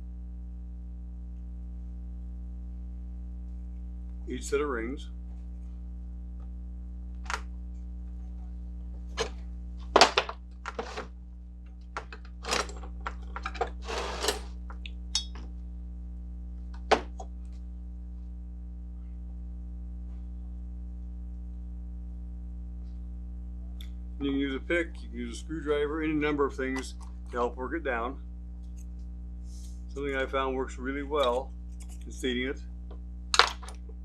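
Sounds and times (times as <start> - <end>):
low hum: 0.0 - 34.0
metal parts clinking: 12.0 - 14.5.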